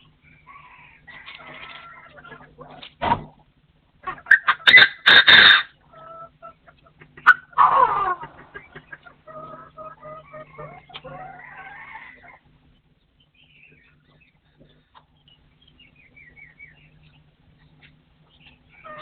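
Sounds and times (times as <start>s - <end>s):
partridge harsh calls: 4.0s - 5.9s.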